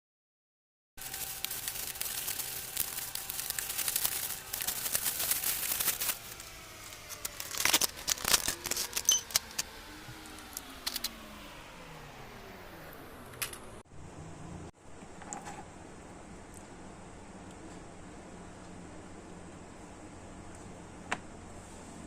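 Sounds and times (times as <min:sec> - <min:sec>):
plastic parts clicking and rustling: 0:01.0 - 0:11.2, 0:13.3 - 0:13.8.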